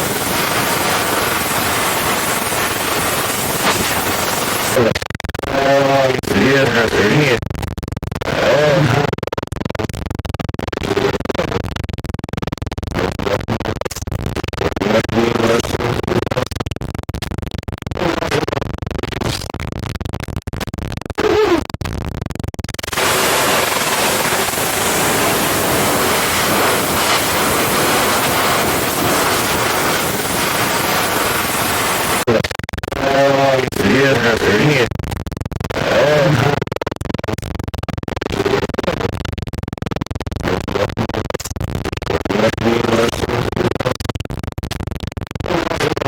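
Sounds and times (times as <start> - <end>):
tv static hiss: 0.0 - 4.8, 22.8 - 32.4
scratchy crackling noise: 0.0 - 5.6, 6.4 - 46.0.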